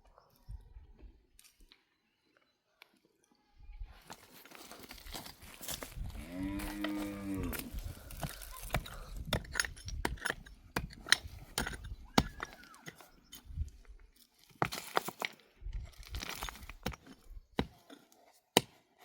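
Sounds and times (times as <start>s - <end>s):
farm animal mooing: 6.1s - 7.8s.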